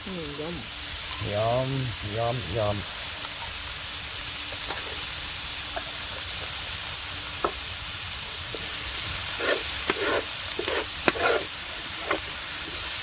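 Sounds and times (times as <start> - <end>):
vegetables sizzling in oil: 0.0 - 13.0
utensil knocking and scraping pan: 8.6 - 13.0.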